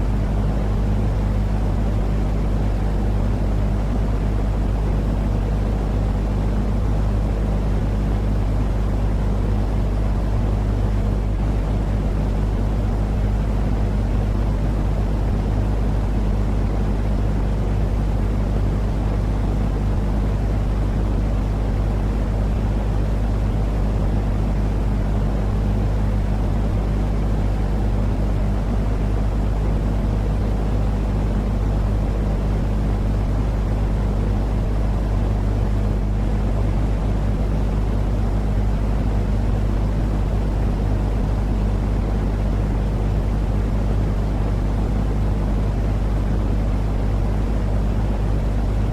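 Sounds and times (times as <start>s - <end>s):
low constant hum: 0.0s - 48.9s.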